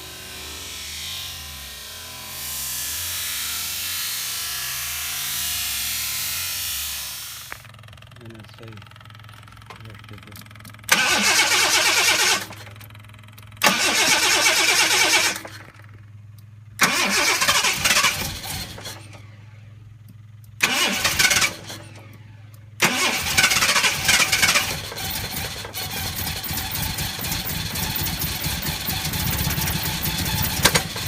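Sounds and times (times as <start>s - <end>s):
car engine running: 5.8s - 31.0s
car engine cranking on starter: 7.3s - 31.0s.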